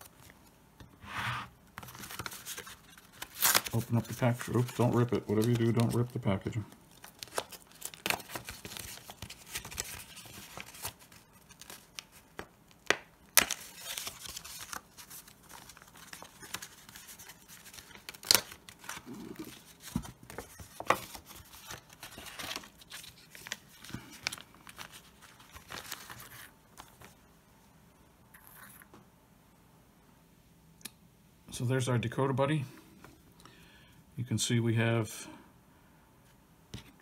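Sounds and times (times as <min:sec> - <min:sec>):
plastic bag crinkling: 0:01.9 - 0:12.3.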